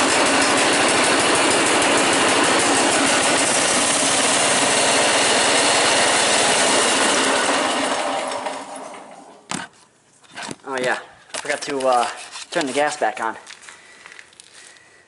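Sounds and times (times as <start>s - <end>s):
tractor engine pulsing: 0.0s - 9.1s.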